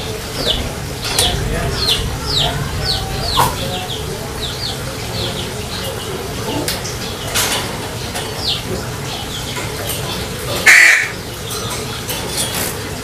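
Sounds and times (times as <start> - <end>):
low background rumble: 0.0 - 7.3
small birds chirping: 0.0 - 12.7.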